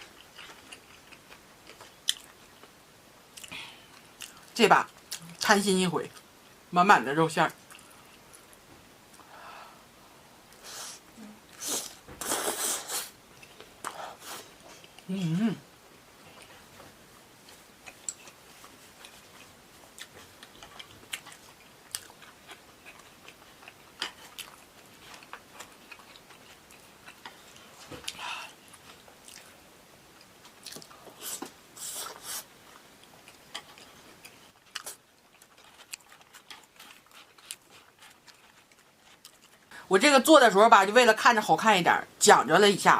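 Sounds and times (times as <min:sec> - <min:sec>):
chewing and biting food: 0:17.4 - 0:29.6, 0:30.2 - 0:31.2, 0:32.1 - 0:39.7.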